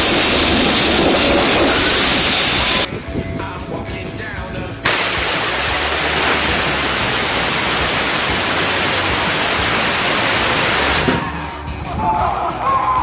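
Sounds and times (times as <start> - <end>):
rocket engine roaring: 0.0 - 2.9, 4.9 - 11.3.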